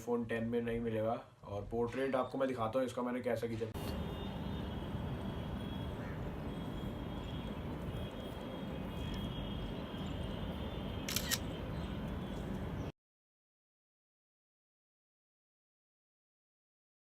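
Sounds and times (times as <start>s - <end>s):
short click-like burst: 11.0s - 11.5s.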